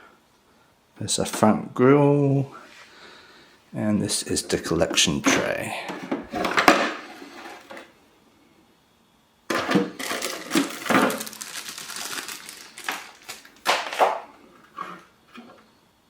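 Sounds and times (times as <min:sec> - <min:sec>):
hard plastic clattering: 0:09.5 - 0:15.6.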